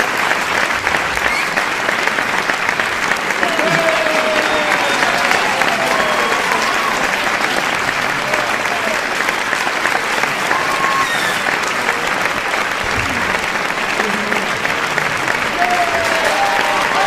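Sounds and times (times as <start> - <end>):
audience applauding: 0.0 - 17.0
voices shouting: 3.4 - 9.0.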